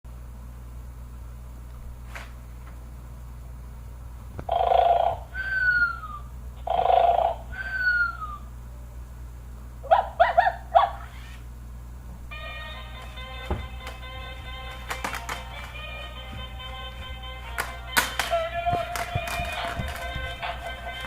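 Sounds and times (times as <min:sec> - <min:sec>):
toy robot dog barking: 0:09.9 - 0:11.3
toy robot dog yapping: 0:09.9 - 0:11.4.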